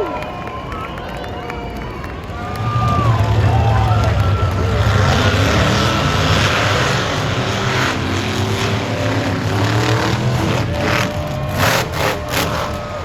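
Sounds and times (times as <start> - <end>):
monster truck engine running: 0.1 - 13.0.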